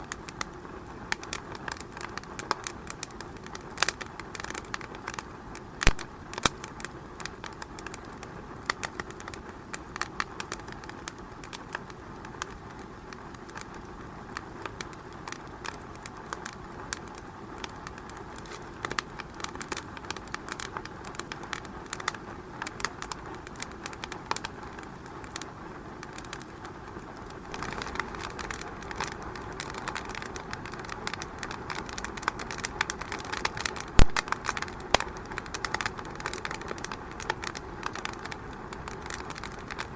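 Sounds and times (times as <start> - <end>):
hiss of flames: 0.0 - 39.9
wood fire crackling and popping: 0.0 - 39.9.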